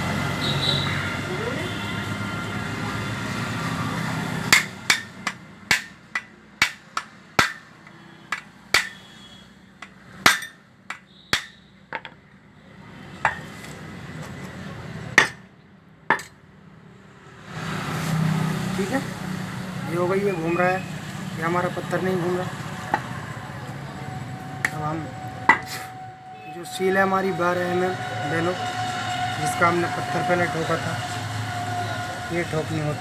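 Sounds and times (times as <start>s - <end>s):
hammer knocking on metal: 4.5s - 9.1s.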